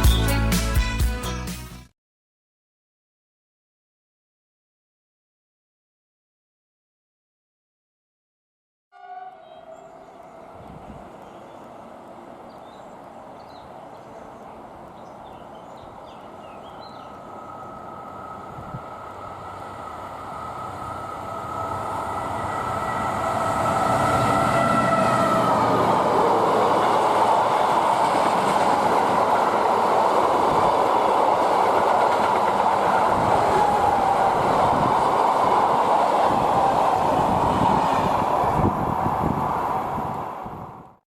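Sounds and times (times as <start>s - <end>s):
diesel locomotive passing: 9.0s - 41.0s
train wheel clatter: 26.9s - 34.1s.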